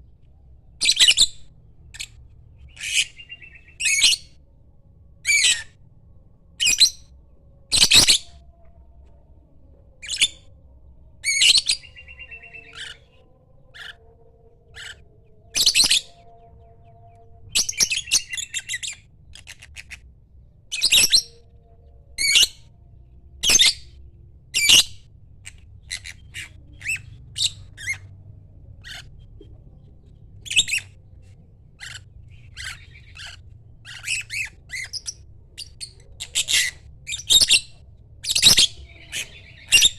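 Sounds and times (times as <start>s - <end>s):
bird calling and chirping: 2.7s - 4.2s, 15.6s - 16.3s, 31.8s - 39.9s.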